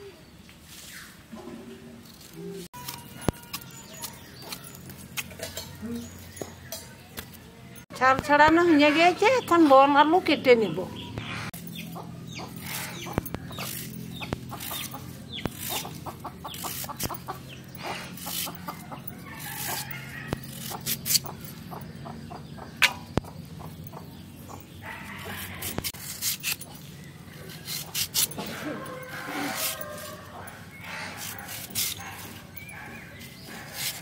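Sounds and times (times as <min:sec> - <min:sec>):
chickens clucking: 0:10.9 - 0:26.0.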